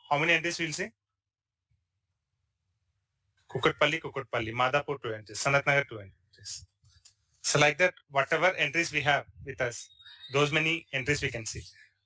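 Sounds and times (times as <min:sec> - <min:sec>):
person speaking: 0:03.5 - 0:06.7, 0:07.4 - 0:11.7.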